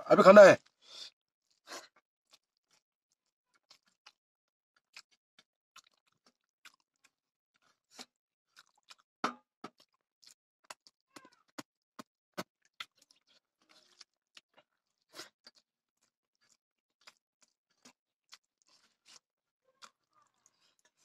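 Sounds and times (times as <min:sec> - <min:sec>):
person chewing and smacking: 0:00.6 - 0:21.0.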